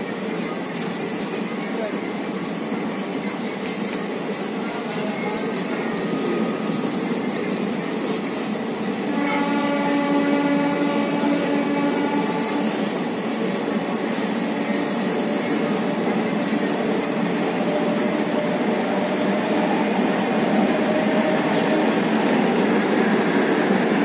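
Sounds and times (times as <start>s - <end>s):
train moving past: 0.0s - 24.0s
train horn long note: 9.1s - 12.8s.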